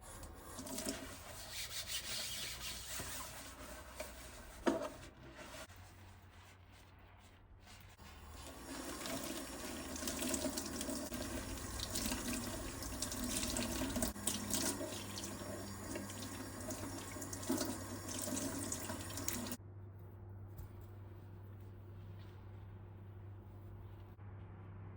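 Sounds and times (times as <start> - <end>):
tap water running into sink: 8.3 - 19.6.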